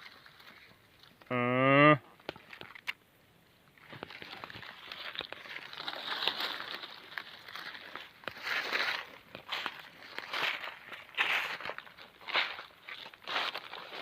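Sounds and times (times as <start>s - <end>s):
footsteps crunching through dry leaves: 3.8s - 14.0s.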